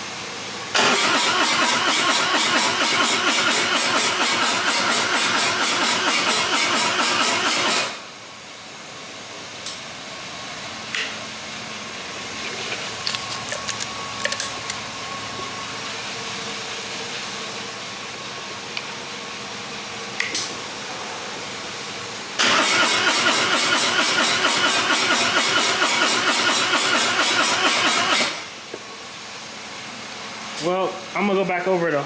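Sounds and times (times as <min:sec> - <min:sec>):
electric starter cranking engine: 0:00.7 - 0:08.0, 0:22.4 - 0:28.5.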